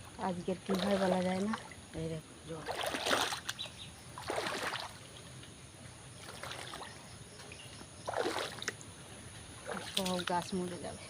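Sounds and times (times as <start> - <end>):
floodwater sloshing and splashing: 0.0 - 11.0
low wash of water: 4.1 - 7.0.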